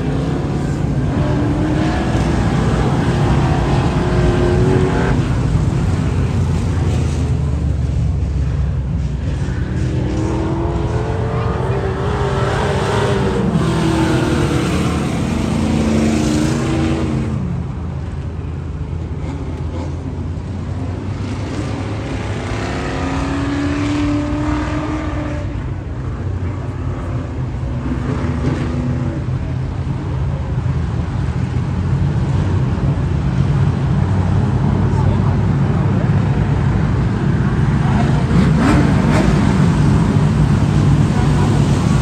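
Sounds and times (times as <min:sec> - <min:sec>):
race car engine running: 0:00.0 - 0:23.2, 0:33.8 - 0:42.0.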